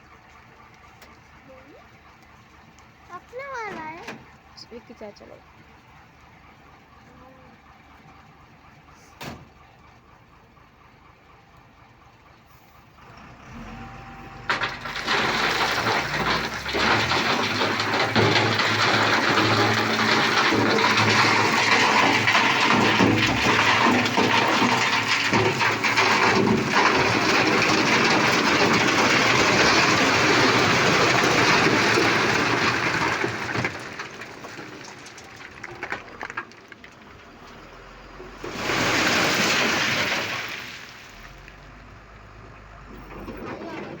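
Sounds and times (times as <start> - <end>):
rubble sliding from truck: 12.5 - 44.0.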